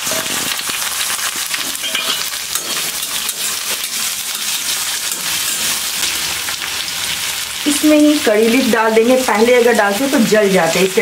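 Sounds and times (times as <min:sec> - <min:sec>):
metal spatula stirring: 0:00.0 - 0:06.6
onions sizzling in hot oil: 0:00.0 - 0:11.0.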